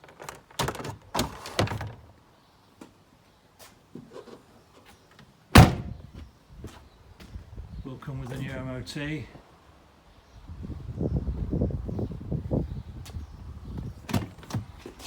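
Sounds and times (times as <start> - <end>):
tailgate slamming shut: 5.5 - 6.1
car boot knocks and clunks: 5.6 - 6.1, 14.0 - 14.9.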